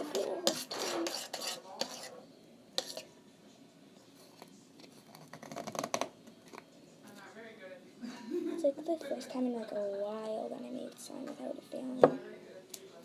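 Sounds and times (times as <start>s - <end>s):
spoon scraping slime in bowl: 0.0s - 2.2s, 2.8s - 3.1s.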